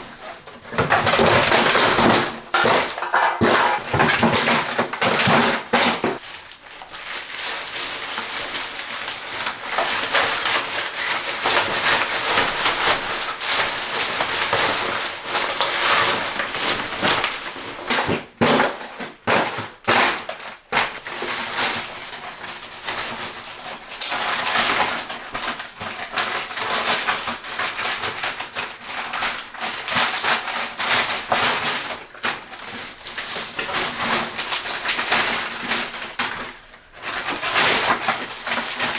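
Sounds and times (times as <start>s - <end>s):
bottles clattering: 0.0s - 6.2s
plastic crinkling and rustling: 0.0s - 38.9s.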